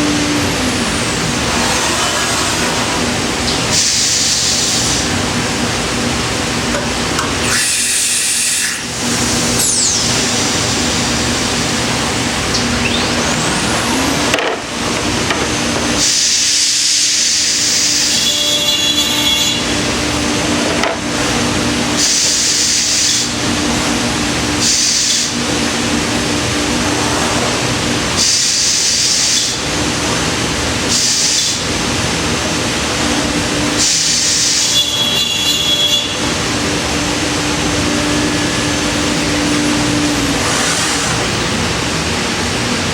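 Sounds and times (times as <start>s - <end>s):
cnc router spindle hum: 0.0s - 42.9s
rising machine whine: 7.4s - 16.0s, 34.6s - 41.4s
cutter hissing into wood: 37.6s - 41.6s.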